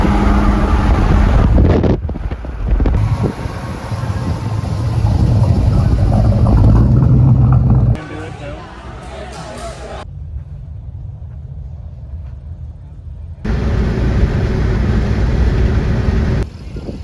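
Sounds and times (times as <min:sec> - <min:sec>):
car engine running: 0:00.0 - 0:01.6, 0:02.7 - 0:08.0, 0:13.5 - 0:16.4
wind buffeting microphone: 0:00.0 - 0:08.0.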